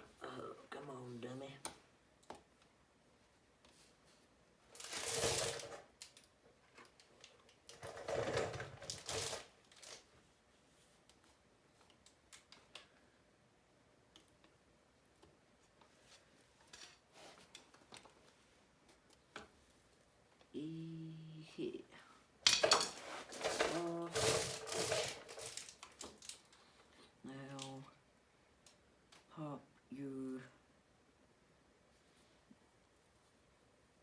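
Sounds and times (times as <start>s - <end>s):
clicks and knocks of tools: 22.4s - 26.6s.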